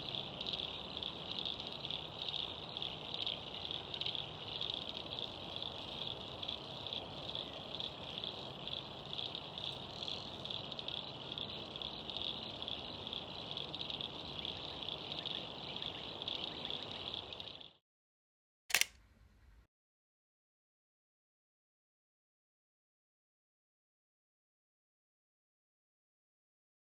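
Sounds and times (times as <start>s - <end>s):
insects trilling: 0.0s - 17.8s
low hiss of pond ambience: 0.0s - 17.8s.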